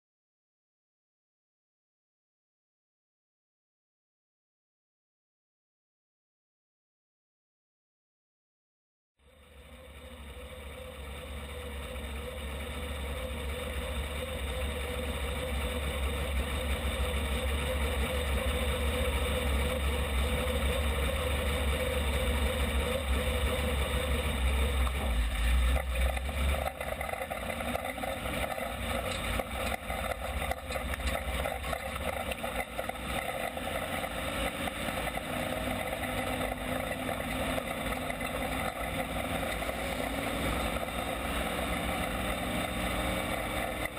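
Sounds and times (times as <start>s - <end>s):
race car engines droning: 9.2s - 43.9s.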